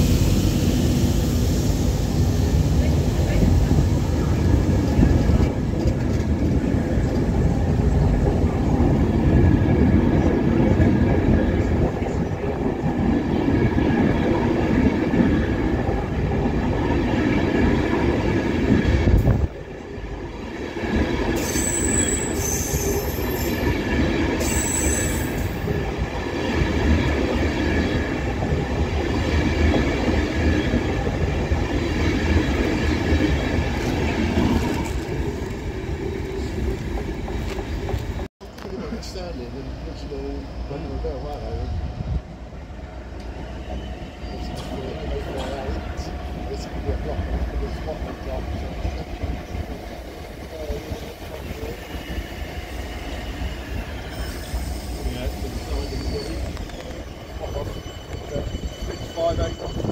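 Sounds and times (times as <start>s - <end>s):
train rumble on rails: 0.0s - 59.9s
high wheel squeal: 21.4s - 23.8s, 24.4s - 25.7s, 51.4s - 59.9s.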